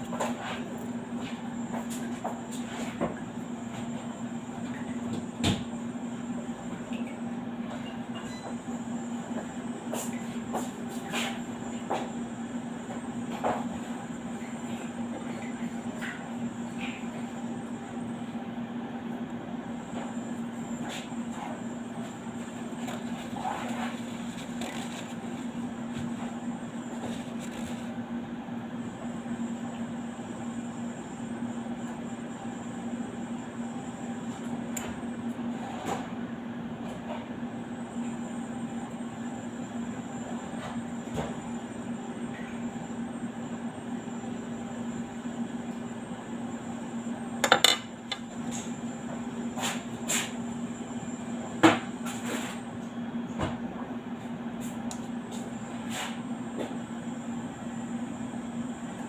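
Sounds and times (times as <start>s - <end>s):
steady hum: 0.0s - 36.0s.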